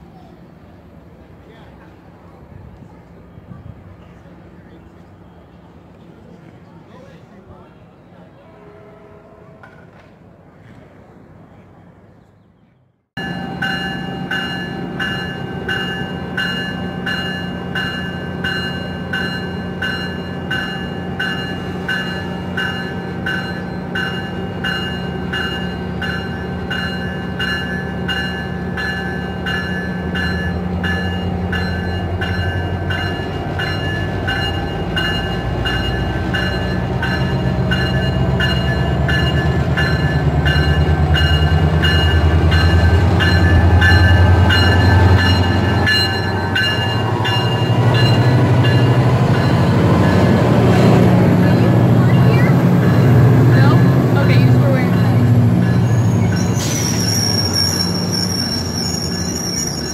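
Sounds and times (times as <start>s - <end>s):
diesel locomotive engine rumble: 0.0s - 12.1s, 13.2s - 59.9s
bell ringing: 13.2s - 56.6s.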